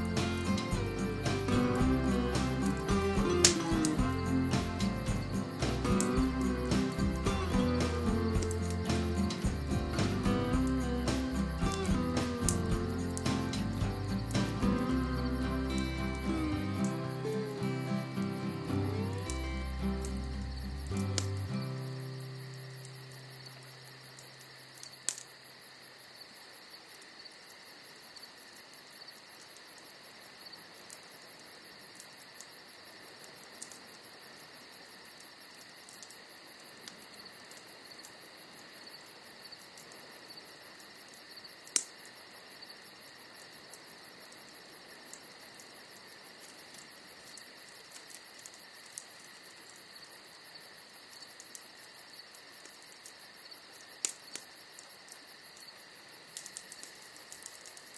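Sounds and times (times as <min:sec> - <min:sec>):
bonfire crackling and popping: 0:00.0 - 0:25.4, 0:43.3 - 0:57.9
crickets chirping: 0:00.0 - 0:57.9.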